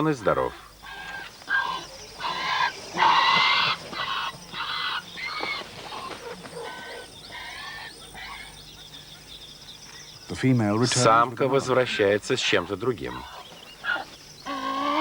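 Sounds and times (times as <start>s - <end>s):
hornbill chick raspy calls: 0.5s - 9.4s.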